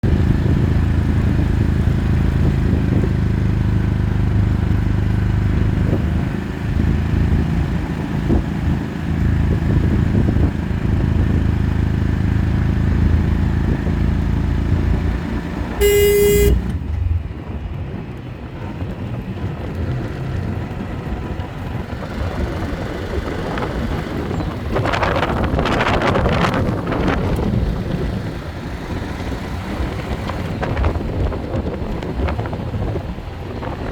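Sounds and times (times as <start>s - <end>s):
vehicle engine running: 0.0s - 33.9s
horn toot: 15.8s - 16.8s.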